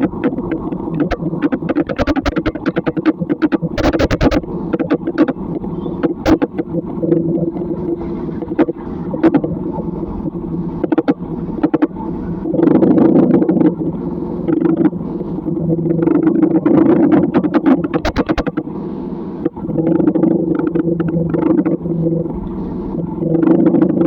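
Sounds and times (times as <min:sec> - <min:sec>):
sharp taps and clicks: 0:00.0 - 0:06.8, 0:17.2 - 0:18.7
vehicle engine humming: 0:00.0 - 0:24.0.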